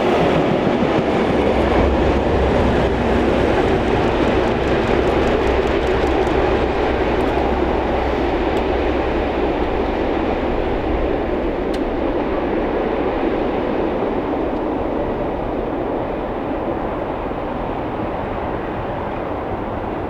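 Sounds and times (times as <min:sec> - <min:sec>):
train rolling on rails: 0:00.0 - 0:20.0
wheel clicks: 0:03.3 - 0:09.8.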